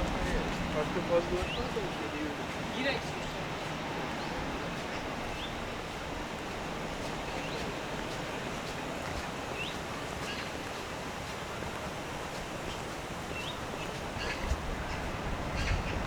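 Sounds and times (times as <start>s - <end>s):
outdoor background rush: 0.0s - 16.0s.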